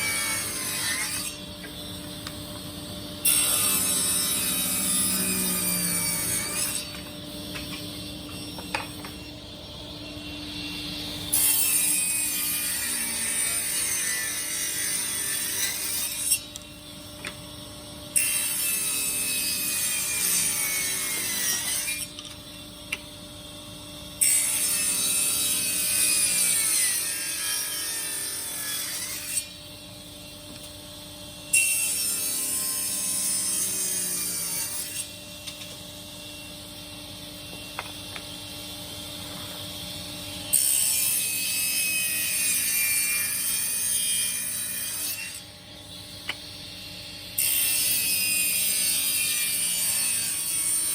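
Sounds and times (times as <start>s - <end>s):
power saw cutting wood: 3.2s - 7.0s, 10.4s - 16.5s, 18.2s - 22.2s.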